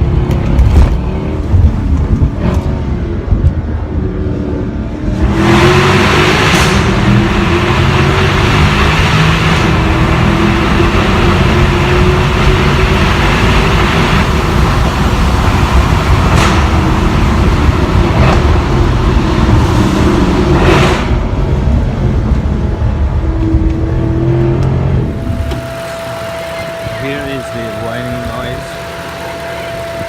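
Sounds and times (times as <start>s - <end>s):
car engine accelerating: 0.0s - 30.0s
exhaust cracks: 6.4s - 21.6s, 23.6s - 30.0s
steady high whine: 21.2s - 30.0s.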